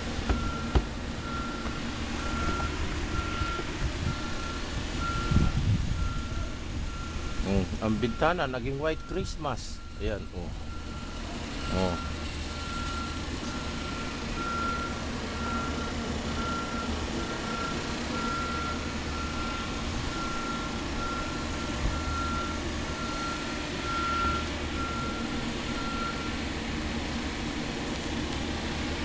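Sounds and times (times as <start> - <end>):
low engine rumble: 0.0 - 29.0
reversing alarm beeping: 0.3 - 26.5.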